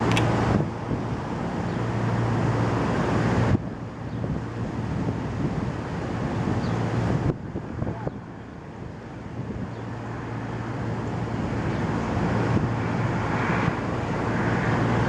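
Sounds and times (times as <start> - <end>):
storm wind buffeting microphone: 0.0 - 15.0.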